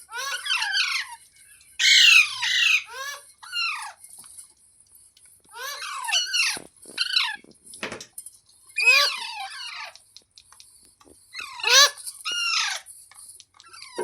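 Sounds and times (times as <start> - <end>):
parrot squawking: 0.1 - 1.2, 1.8 - 4.0, 5.5 - 7.4, 8.8 - 10.0, 11.3 - 12.9, 13.6 - 14.0.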